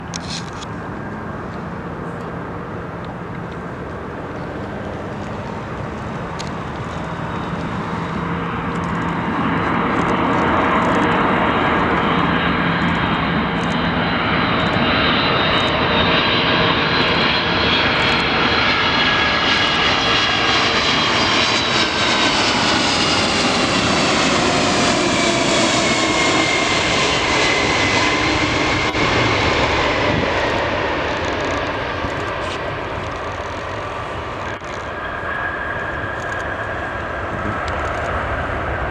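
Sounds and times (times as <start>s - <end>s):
high engine whine: 0.0s - 38.9s
jet engines roaring: 0.0s - 38.9s.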